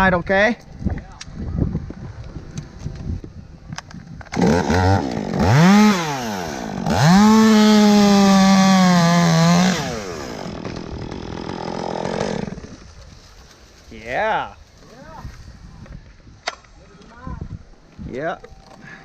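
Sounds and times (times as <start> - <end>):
chainsaw revving and cutting: 4.3 - 12.9.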